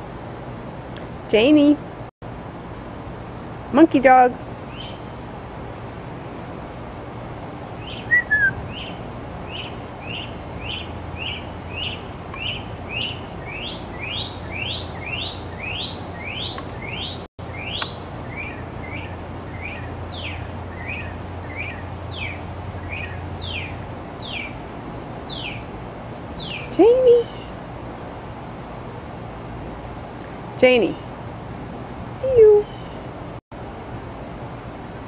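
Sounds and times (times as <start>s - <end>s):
songbird singing whistled notes: 4.7s - 5.0s, 7.8s - 24.6s, 25.2s - 25.6s, 26.3s - 27.5s, 32.5s - 33.0s.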